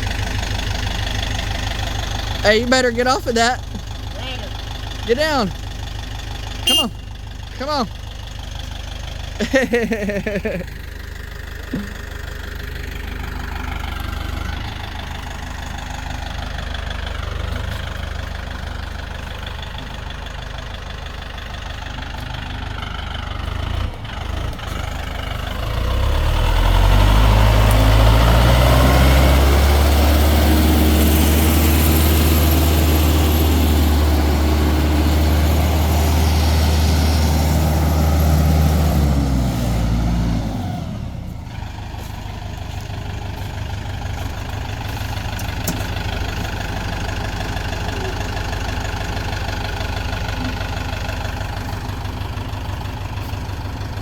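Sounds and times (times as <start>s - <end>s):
vehicle engine revving: 21.7s - 53.8s.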